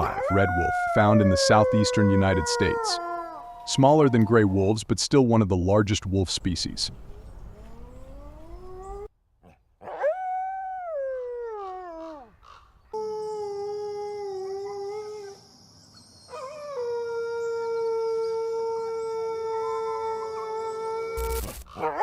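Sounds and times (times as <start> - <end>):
wolves howling: 0.0 - 4.7, 7.0 - 9.1, 9.8 - 12.3, 13.0 - 15.4, 16.2 - 22.0.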